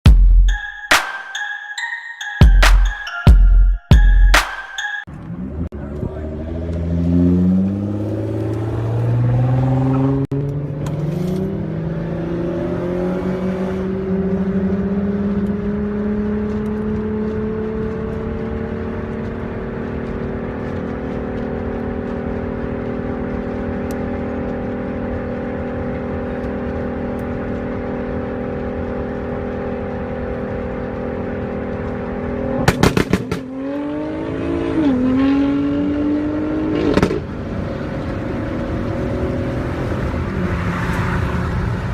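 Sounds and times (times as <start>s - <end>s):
car engine revving high: 5.2s - 41.9s
engine bangs: 32.4s - 40.6s.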